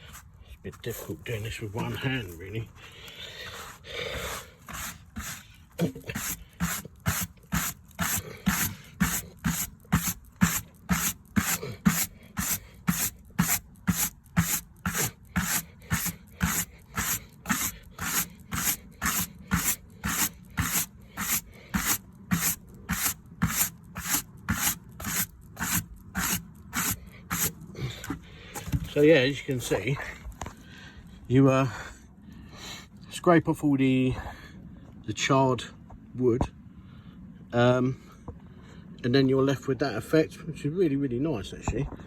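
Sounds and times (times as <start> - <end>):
wire brush scrubbing wood: 3.5 - 29.4.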